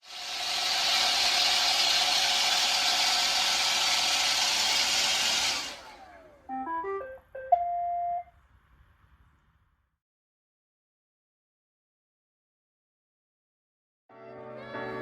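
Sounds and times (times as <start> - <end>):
robot vacuum motor whine: 0.0 - 6.6.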